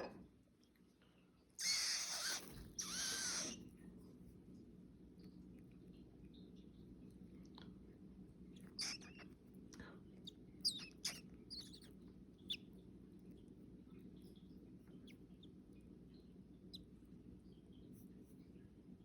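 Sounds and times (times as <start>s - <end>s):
low steady hum: 0.0s - 19.0s
baby bird chirping: 1.6s - 3.6s, 8.6s - 9.4s, 10.2s - 12.7s.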